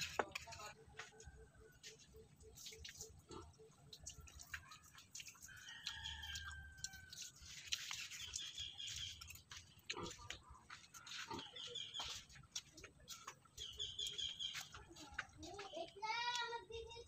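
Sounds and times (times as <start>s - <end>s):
soft wet chewing: 0.0s - 16.7s.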